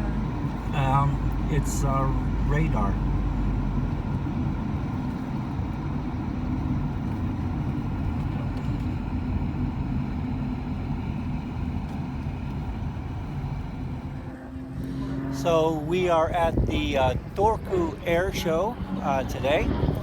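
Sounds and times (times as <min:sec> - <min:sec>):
vehicle engine and road rumble: 0:00.0 - 0:20.0.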